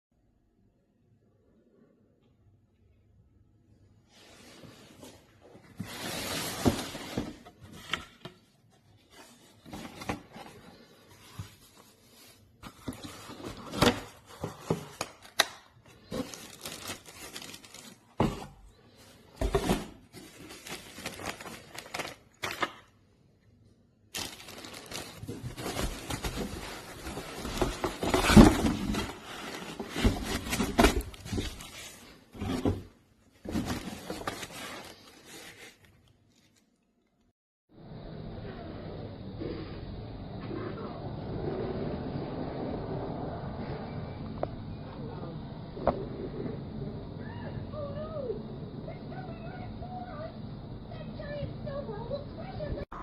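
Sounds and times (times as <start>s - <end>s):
rustling: 15.9s - 22.6s, 24.1s - 36.8s.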